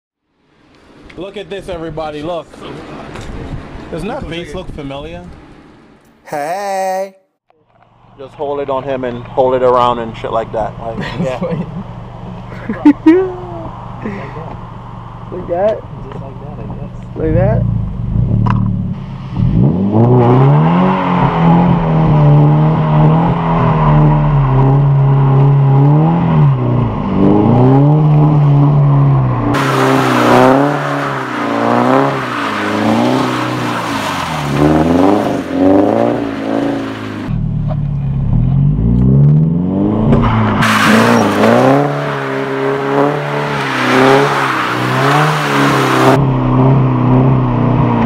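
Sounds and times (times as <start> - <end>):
car engine revving: 13.2 - 48.0.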